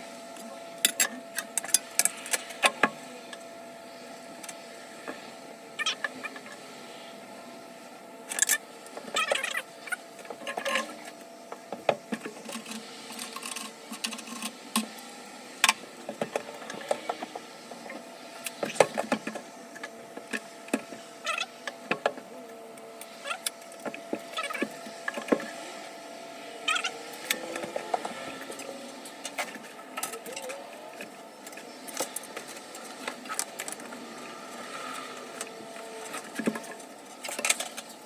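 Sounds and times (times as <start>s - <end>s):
squeaky scraping: 9.1s - 11.1s.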